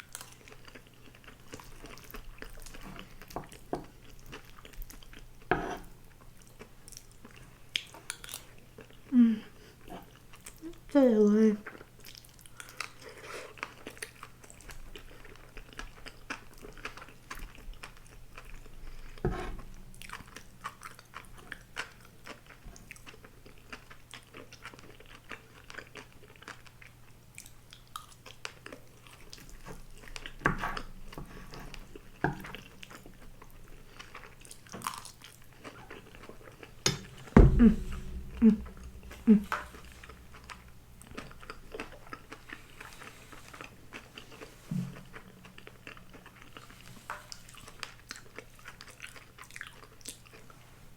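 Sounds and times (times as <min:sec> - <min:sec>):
close chewing with wet mouth clicks: 0:00.0 - 0:05.4, 0:06.1 - 0:09.1, 0:11.6 - 0:37.1, 0:40.0 - 0:50.6
food crunching: 0:11.7 - 0:50.6
louder knocks: 0:36.9 - 0:40.6.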